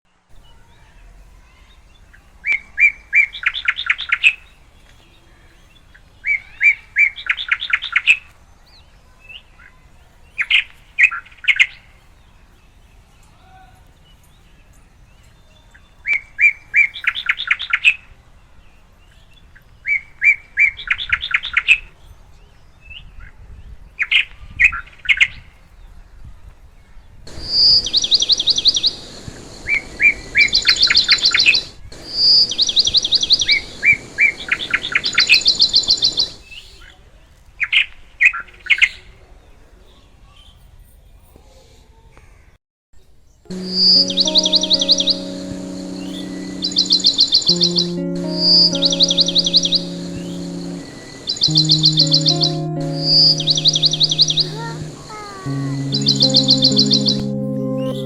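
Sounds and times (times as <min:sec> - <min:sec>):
background hiss: 0:27.3 - 0:36.4, 0:43.5 - 0:58.0
higher bird chirping: 0:43.5 - 0:58.0
songbird singing with trill: 0:43.5 - 0:58.0.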